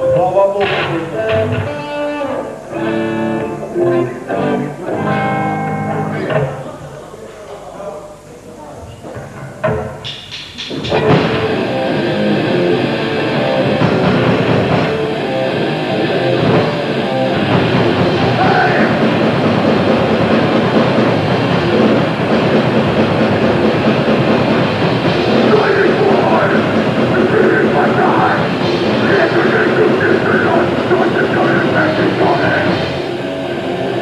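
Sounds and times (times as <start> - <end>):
bass guitar: 0.0 - 6.8, 10.7 - 34.0
distorted guitars: 0.0 - 7.1, 8.2 - 34.0
fast drums: 9.6 - 34.0.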